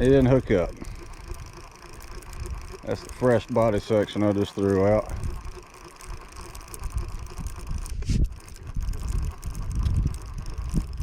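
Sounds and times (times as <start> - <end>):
wind gusting on microphone: 6.1 - 11.0.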